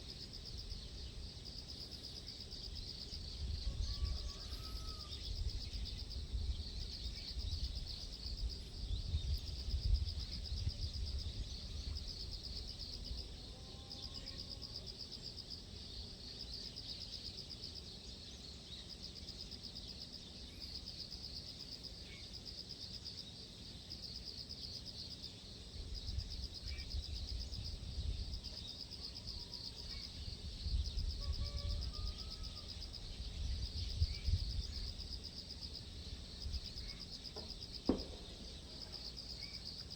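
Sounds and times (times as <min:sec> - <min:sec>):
insects trilling: 0:00.0 - 0:39.9
faint bird chirps: 0:03.4 - 0:05.9.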